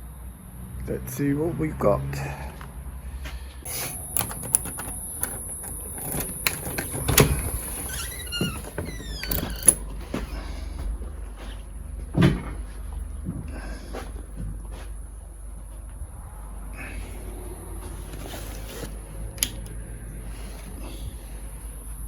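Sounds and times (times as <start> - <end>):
steady high whine: 3.7 - 8.9
door clicks and knocks: 3.7 - 9.9
door squeak: 3.7 - 9.9.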